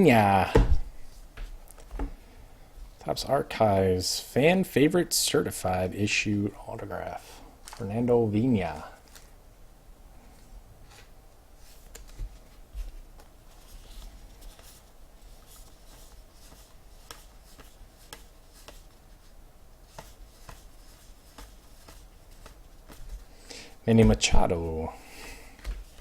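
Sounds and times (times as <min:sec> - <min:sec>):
cards clicking and rubbing: 0:11.7 - 0:23.3.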